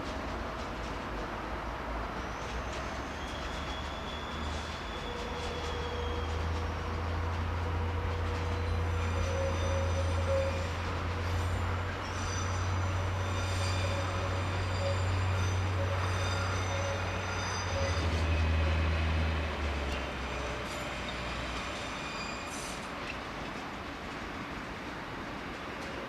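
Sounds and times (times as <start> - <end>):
train low hum: 0.0 - 26.0
high-pitched wheel squeal: 2.2 - 6.8, 8.6 - 18.7, 20.3 - 22.9.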